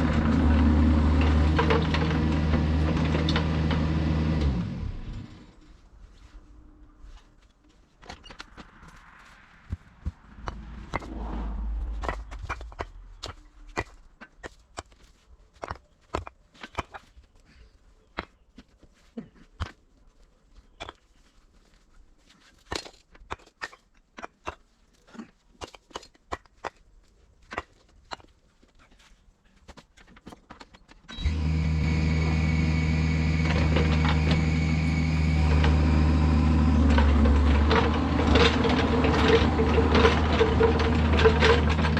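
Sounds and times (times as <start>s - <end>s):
diesel engine running: 0.0s - 5.5s, 10.3s - 13.8s, 31.2s - 41.9s
low rumble: 8.6s - 14.2s.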